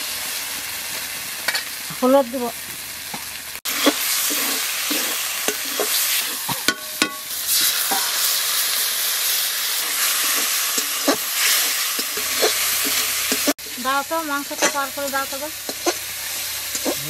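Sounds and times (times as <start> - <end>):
spice paste frying in oil: 0.0 - 17.0
strong hissing sizzle: 0.0 - 17.0
metal spatula scraping a pan: 3.7 - 8.4, 9.8 - 13.6, 14.4 - 17.0.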